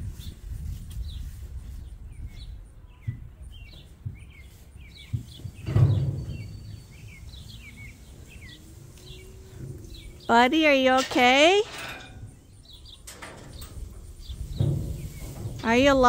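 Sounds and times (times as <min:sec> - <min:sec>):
small birds chirping: 0:00.2 - 0:16.0
low rumbling noise: 0:05.3 - 0:16.0.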